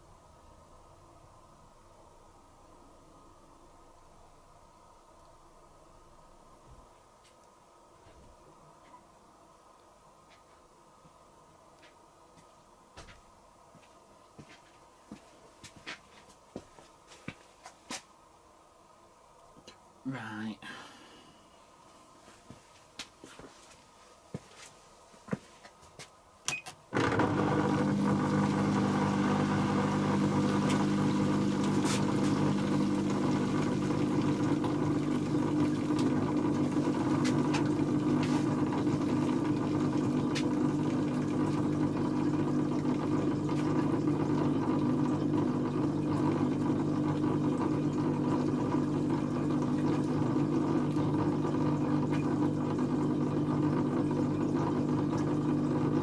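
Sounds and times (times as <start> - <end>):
washing machine humming: 26.5 - 56.0.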